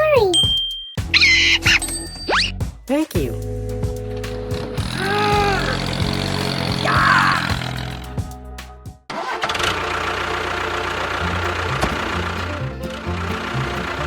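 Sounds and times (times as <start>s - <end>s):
small tractor engine running: 3.4s - 8.4s, 9.1s - 14.0s.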